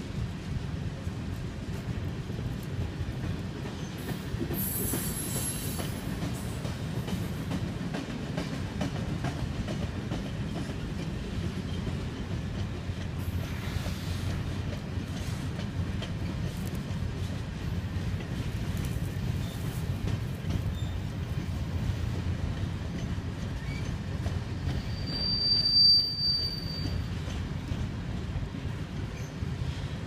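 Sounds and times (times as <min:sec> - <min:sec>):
train wheels rumbling on rails: 0:00.0 - 0:30.0
wheels clacking over rail joints: 0:01.6 - 0:25.4
high wheel squeal: 0:24.7 - 0:27.2.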